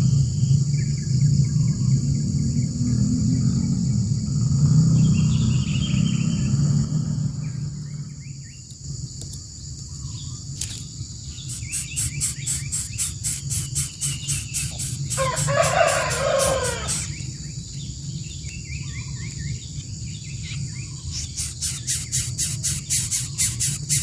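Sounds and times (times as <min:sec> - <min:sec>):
insect drone: 0:00.0 - 0:24.0
rapid high chirping: 0:11.3 - 0:17.4, 0:20.6 - 0:24.0
bird call: 0:11.4 - 0:17.2.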